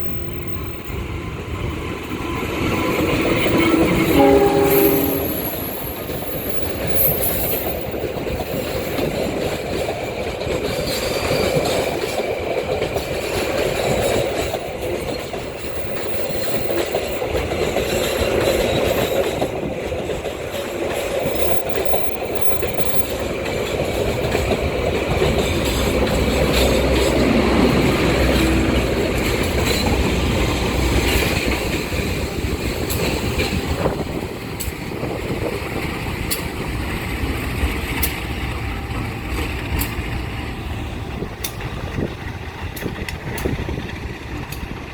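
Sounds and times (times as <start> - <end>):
train rumble: 0.0 - 44.9
train wheels clicking on rail joints: 0.0 - 44.9.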